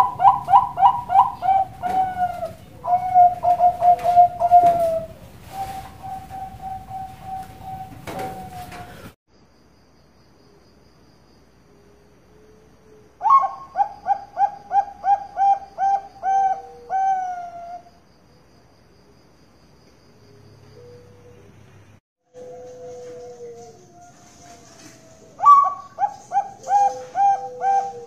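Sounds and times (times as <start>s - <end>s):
dove cooing: 0.0s - 9.1s, 12.9s - 17.9s, 20.8s - 21.5s, 22.4s - 28.0s.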